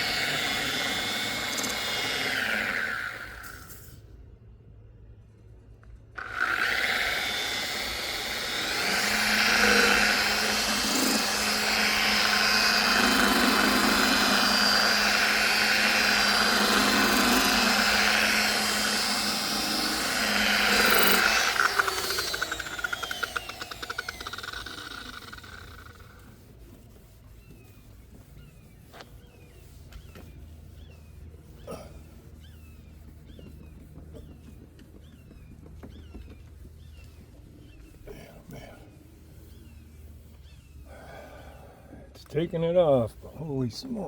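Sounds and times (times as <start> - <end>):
power buffer spinning: 0.0 - 3.7, 6.2 - 26.4.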